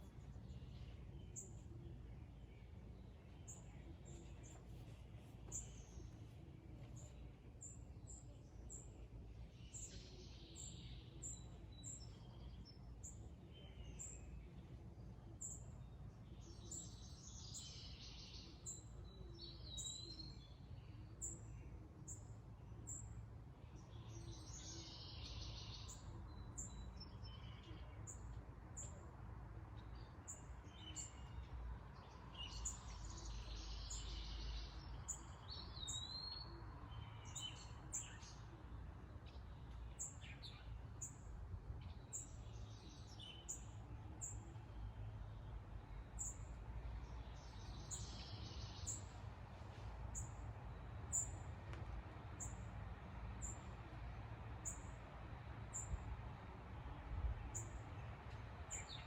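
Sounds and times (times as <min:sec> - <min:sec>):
birds singing: 0:00.0 - 0:29.1, 0:29.8 - 0:53.9, 0:54.6 - 0:55.0, 0:55.6 - 0:56.1, 0:56.8 - 0:59.0.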